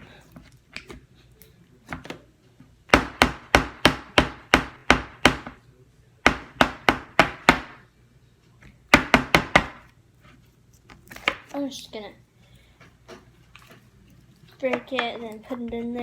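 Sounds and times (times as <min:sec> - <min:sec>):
rapid knocks on hard surface: 0:02.9 - 0:05.6, 0:06.2 - 0:07.8, 0:08.9 - 0:09.8.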